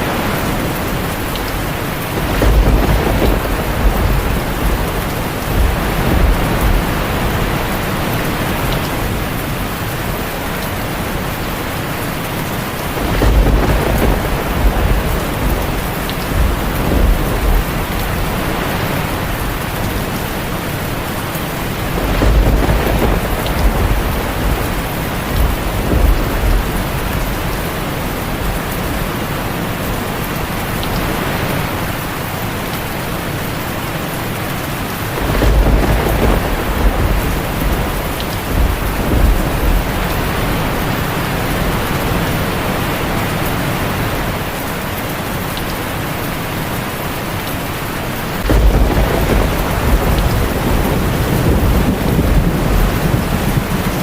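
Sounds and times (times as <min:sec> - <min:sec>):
deep thunder rolls: 0:00.0 - 0:09.7, 0:12.8 - 0:29.3, 0:35.1 - 0:42.5, 0:48.4 - 0:54.0
heavy rain on a tin roof: 0:00.0 - 0:54.0.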